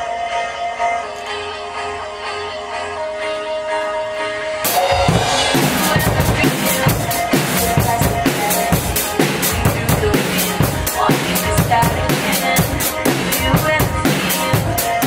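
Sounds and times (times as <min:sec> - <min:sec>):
pop backing track: 0:00.0 - 0:15.0
drum kit playing a groove: 0:04.6 - 0:15.0.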